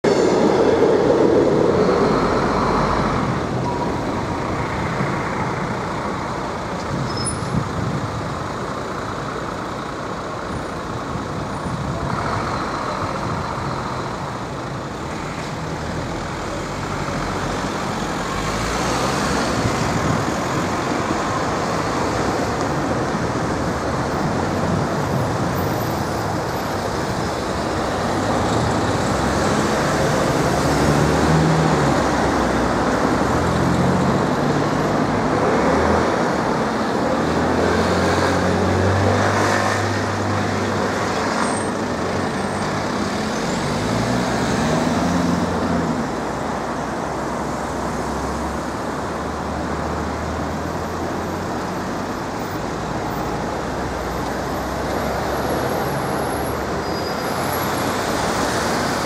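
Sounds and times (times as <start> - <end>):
electric train passing: 0.0 - 4.9
cars driving over crossing: 0.0 - 59.0
street and traffic noise: 0.0 - 59.0.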